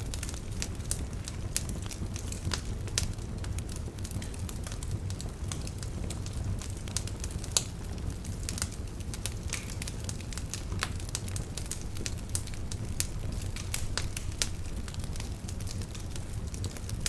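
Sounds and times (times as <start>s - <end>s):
fire flames rumbling: 0.0s - 17.0s
logs crackling and popping: 0.0s - 17.0s.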